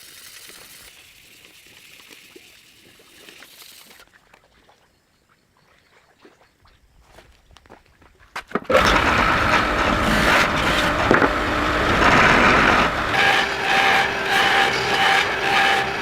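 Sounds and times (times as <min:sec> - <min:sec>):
loud steady machine noise: 0:08.7 - 0:16.0.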